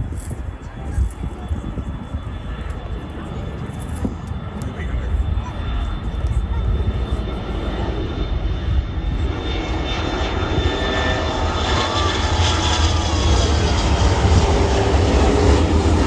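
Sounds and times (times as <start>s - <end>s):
jet engines rushing and whining: 0.0s - 16.0s.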